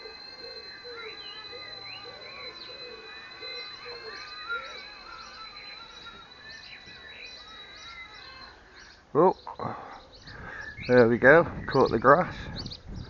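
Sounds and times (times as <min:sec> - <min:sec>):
rc helicopter whine: 0:00.0 - 0:09.0
birds singing and chirping: 0:00.0 - 0:13.0.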